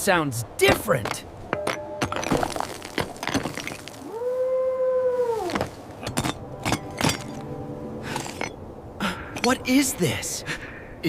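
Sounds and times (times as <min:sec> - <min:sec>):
howl: 0:04.0 - 0:05.6.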